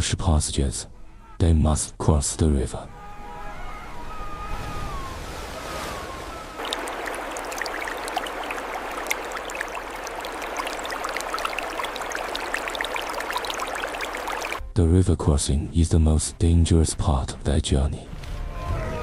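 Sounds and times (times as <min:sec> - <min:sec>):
river water rushing: 0:06.6 - 0:14.6.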